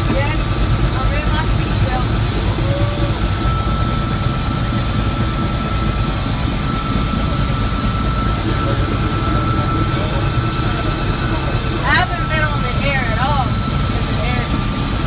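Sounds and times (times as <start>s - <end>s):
constant high tone: 0.0s - 15.0s
helicopter rotor and engine drone: 0.0s - 15.0s.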